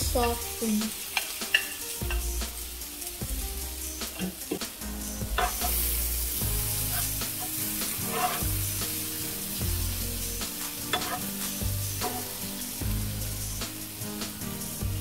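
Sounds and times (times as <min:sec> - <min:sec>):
vegetables sizzling in a pan: 0:00.0 - 0:15.0
spatula scraping and tapping pan: 0:01.1 - 0:02.4, 0:04.1 - 0:05.8, 0:06.8 - 0:08.6, 0:10.4 - 0:12.4.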